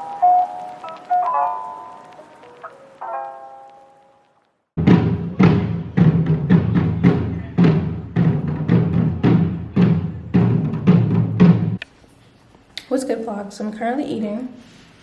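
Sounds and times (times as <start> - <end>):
background music with drum beat: 4.8 - 11.8.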